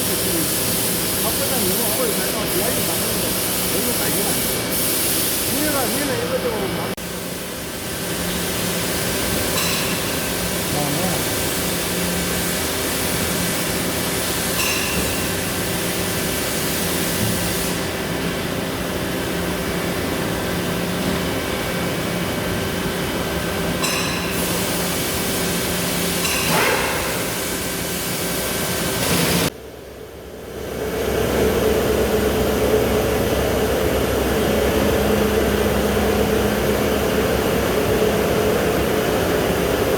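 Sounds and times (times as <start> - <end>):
machine hiss: 0.0 - 18.6, 23.8 - 29.5
lathe machine hum: 30.1 - 39.9.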